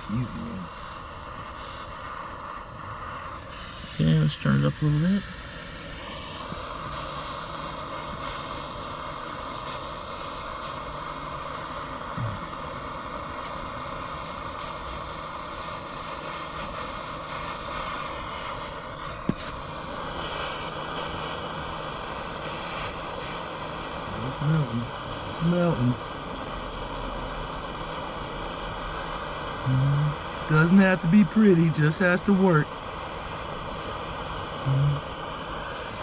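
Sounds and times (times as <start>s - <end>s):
gas torch flame hissing: 0.0s - 36.0s.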